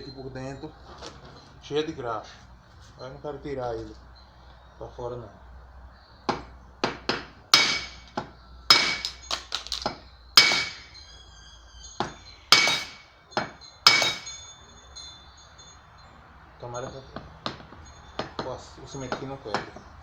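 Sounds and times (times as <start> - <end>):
hammer striking metal shaft: 6.3 - 11.0, 12.0 - 14.5.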